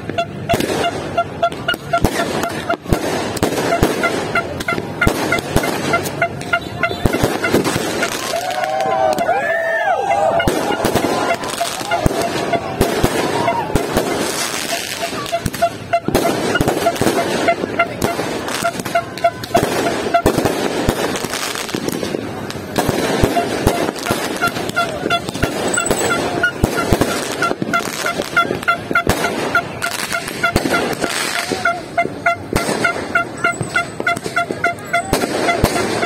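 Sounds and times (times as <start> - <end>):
horn tooting short blasts: 0.0 - 3.0, 3.6 - 9.3, 10.0 - 20.5, 23.1 - 36.0
fireworks bangs and crackles: 0.0 - 36.0.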